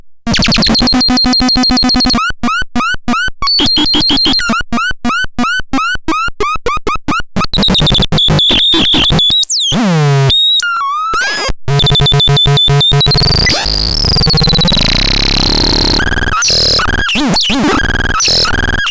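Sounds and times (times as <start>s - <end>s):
synthesizer bird-like chirps: 3.2s - 4.6s.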